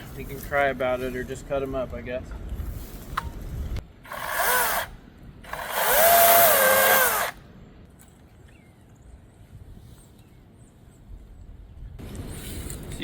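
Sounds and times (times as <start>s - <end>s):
chainsaw motor whine: 4.1s - 7.4s.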